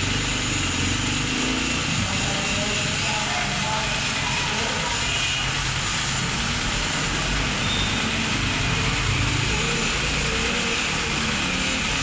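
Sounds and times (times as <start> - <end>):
motor running: 0.0 - 12.0.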